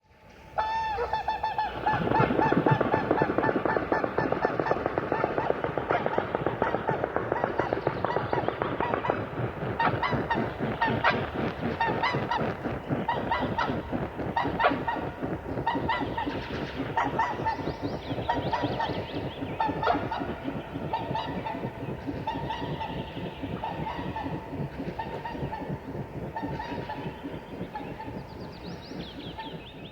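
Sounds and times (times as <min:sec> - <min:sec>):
wingbeats whooshing: 0:01.7 - 0:29.9
swans honking: 0:16.9 - 0:29.7.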